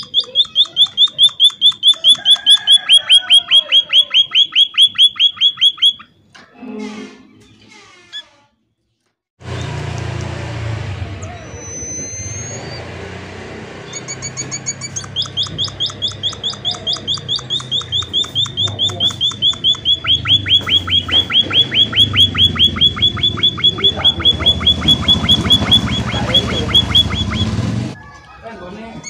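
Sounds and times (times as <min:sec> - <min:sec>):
bird chirping rapidly: 0:00.0 - 0:06.2, 0:11.2 - 0:13.2, 0:13.8 - 0:28.0.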